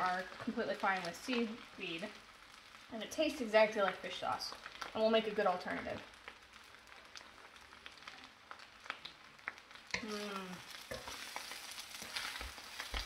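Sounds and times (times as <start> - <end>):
rice sizzling in a hot pan: 0.0 - 13.0
small crackles and clicks: 0.0 - 13.0
person's short vocal sound: 10.0 - 10.7.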